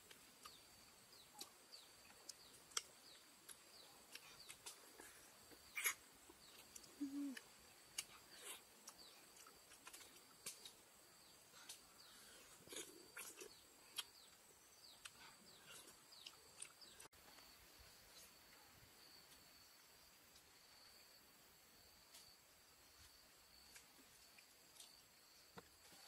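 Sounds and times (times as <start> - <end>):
faint bird chirps: 0.4 - 21.2.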